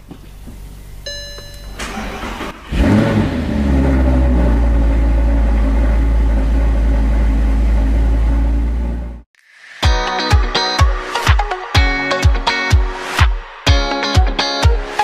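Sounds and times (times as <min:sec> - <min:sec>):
car engine rumbling: 0:00.0 - 0:09.3.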